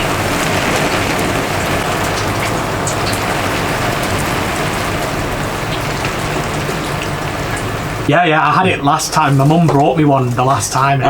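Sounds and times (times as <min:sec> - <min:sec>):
oil sizzling in deep fryer: 0:00.0 - 0:08.2.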